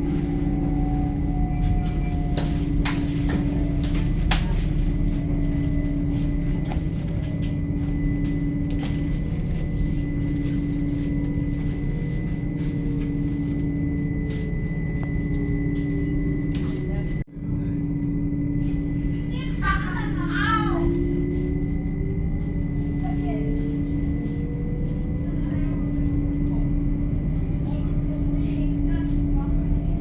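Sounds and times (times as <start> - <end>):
train wheels rumbling on track: 0.0 - 17.2
steady hum: 0.0 - 30.0.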